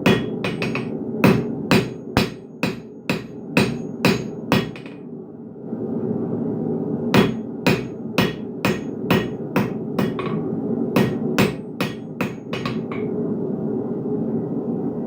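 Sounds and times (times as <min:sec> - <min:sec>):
hammer striking iron on anvil: 0:00.0 - 0:05.0, 0:07.2 - 0:10.4, 0:11.0 - 0:13.1.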